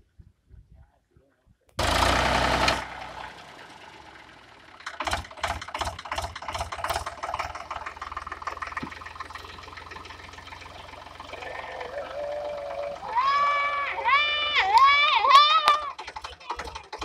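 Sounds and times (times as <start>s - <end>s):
tractor diesel engine running: 1.8s - 17.0s
uneven knocks and rattles: 4.8s - 11.3s.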